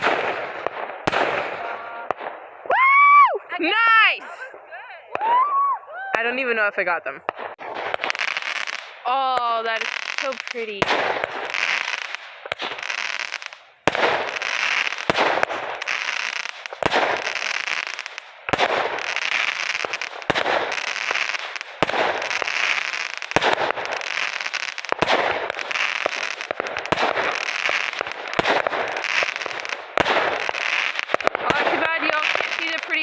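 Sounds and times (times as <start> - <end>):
fireworks bangs: 0.0 - 33.0
fireworks crackling hiss: 7.5 - 33.0.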